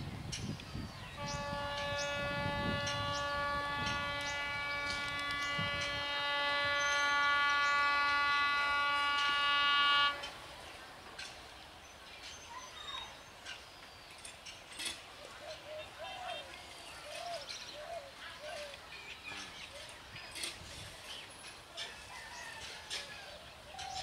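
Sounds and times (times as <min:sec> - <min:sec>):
locomotive horn blast: 0:01.1 - 0:10.6.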